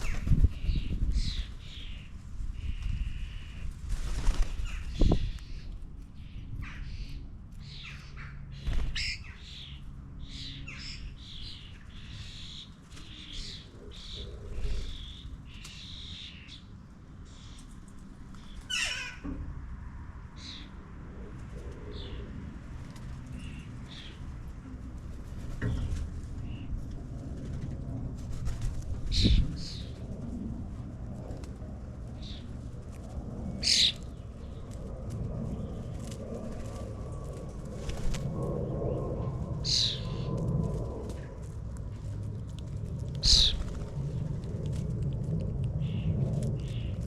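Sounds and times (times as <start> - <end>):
birds chirping and squawking: 0.0 - 19.4, 23.3 - 24.4, 28.4 - 30.2, 32.1 - 32.6, 33.5 - 34.8, 37.8 - 40.4, 43.2 - 44.2, 45.8 - 47.0
loud sweeping bird call: 33.6 - 34.6, 39.6 - 40.3, 43.2 - 43.8.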